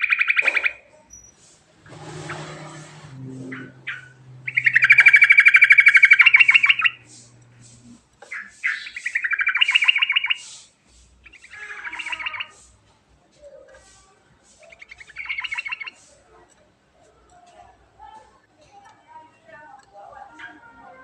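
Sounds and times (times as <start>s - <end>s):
bird singing rattling trills: 2.0s - 7.7s, 8.3s - 10.6s, 11.2s - 12.7s, 14.6s - 16.0s.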